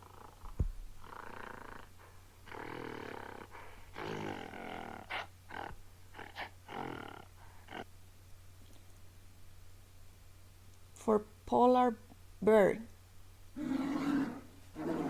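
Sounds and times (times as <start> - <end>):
gorilla calls: 13.6 - 15.0.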